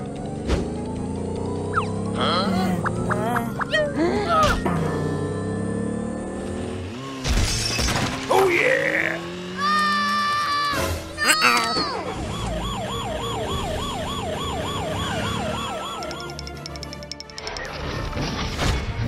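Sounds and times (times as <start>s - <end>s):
emergency siren wailing: 11.3s - 16.6s.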